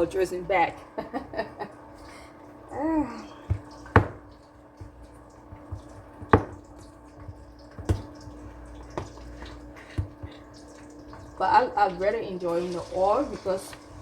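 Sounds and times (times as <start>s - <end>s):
hot oil crackling in a pot: 0.0s - 14.0s.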